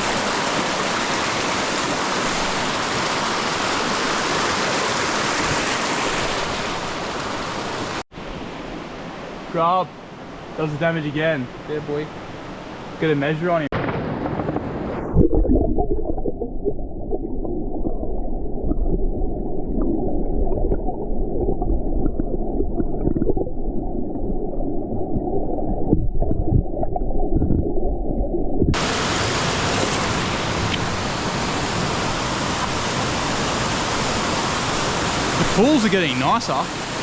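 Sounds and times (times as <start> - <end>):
creek water rushing: 0.0 - 13.6, 28.8 - 37.0
muffled underwater gurgling: 15.1 - 28.8.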